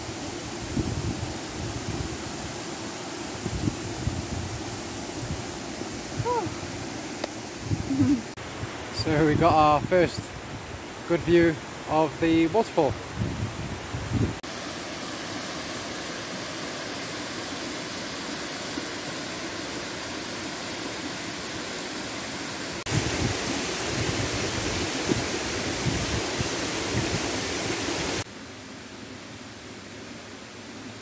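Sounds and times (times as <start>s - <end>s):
waterfall rushing: 14.4s - 28.3s.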